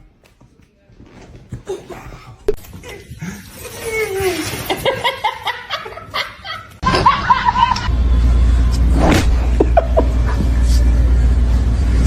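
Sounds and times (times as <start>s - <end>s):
person snickering: 9.5s - 10.5s.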